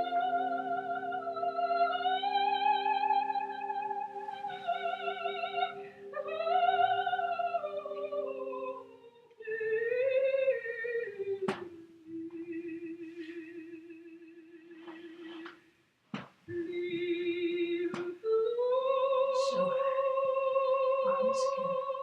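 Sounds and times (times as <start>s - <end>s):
wavering melody with vibrato: 0.0s - 11.5s.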